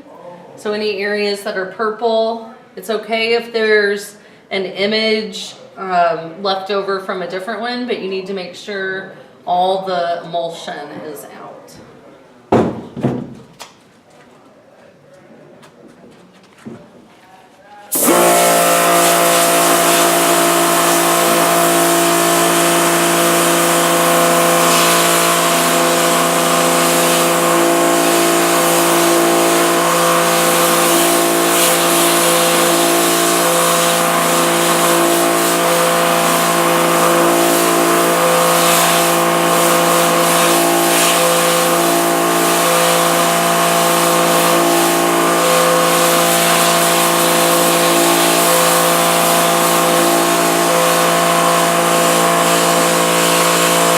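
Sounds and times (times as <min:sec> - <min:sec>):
pressure washer motor humming: 0:17.9 - 0:53.9
water jet hissing: 0:17.9 - 0:53.9.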